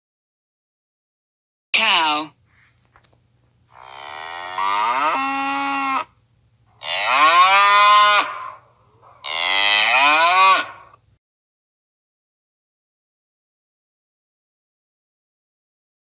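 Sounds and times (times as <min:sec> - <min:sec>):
cow mooing: 0:03.7 - 0:06.1, 0:06.8 - 0:11.0.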